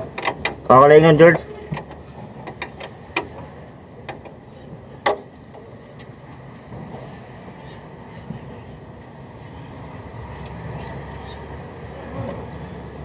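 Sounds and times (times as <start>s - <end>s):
sharp clicks and knocks: 0.0s - 6.1s.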